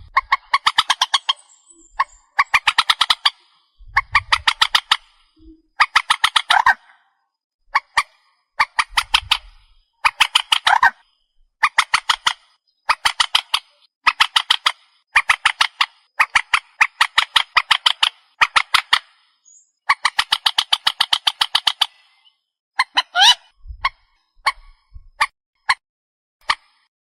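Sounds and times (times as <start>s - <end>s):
waterbird harsh rapid calls: 22.8s - 23.4s.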